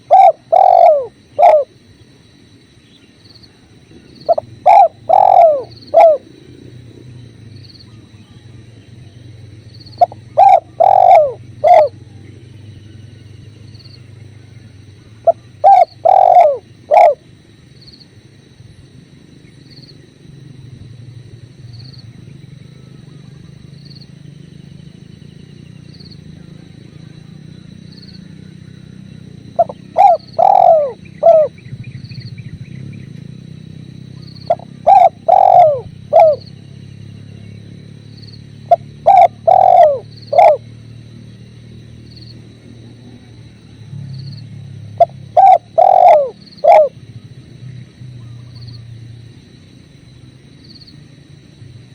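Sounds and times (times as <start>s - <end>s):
dove cooing: 0.0s - 1.8s, 3.9s - 8.6s, 9.9s - 12.5s, 14.7s - 17.3s, 28.2s - 31.6s, 34.0s - 36.6s, 38.6s - 40.8s, 44.6s - 47.3s.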